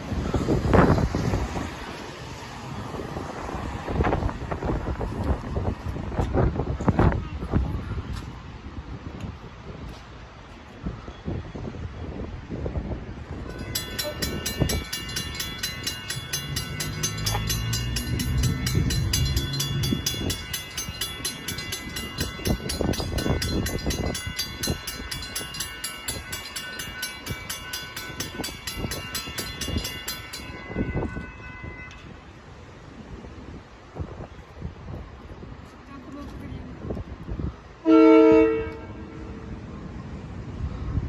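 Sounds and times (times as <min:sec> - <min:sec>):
train passing: 0:00.0 - 0:07.8, 0:12.8 - 0:41.0
crossing bell ringing: 0:13.3 - 0:32.8
deep train horn: 0:37.8 - 0:39.6.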